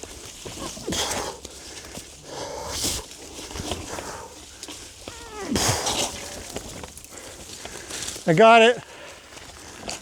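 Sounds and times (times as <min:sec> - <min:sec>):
footsteps crunching on rough ground: 0:00.0 - 0:10.0
person breathing hard: 0:00.8 - 0:03.1.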